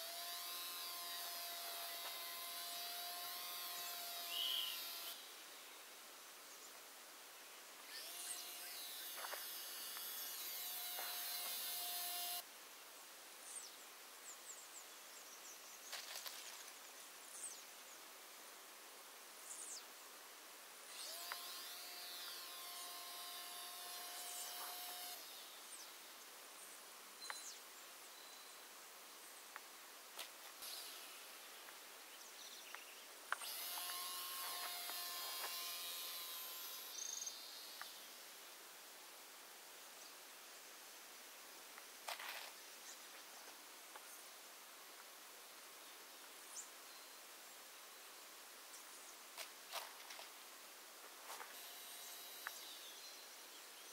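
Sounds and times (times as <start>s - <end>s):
model plane motor whine: 0.0s - 5.3s, 7.8s - 12.4s, 20.9s - 25.5s, 33.4s - 38.0s, 51.5s - 52.9s
faint hiss: 0.0s - 53.9s.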